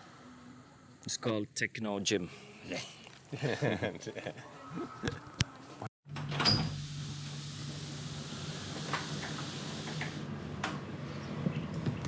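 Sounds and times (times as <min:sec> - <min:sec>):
hiss: 0:07.0 - 0:10.3.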